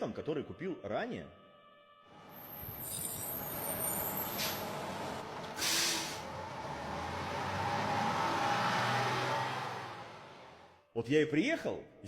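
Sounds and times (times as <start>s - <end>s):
bus engine drone: 2.1s - 10.8s
air brake hiss: 4.1s - 4.8s, 5.5s - 6.3s.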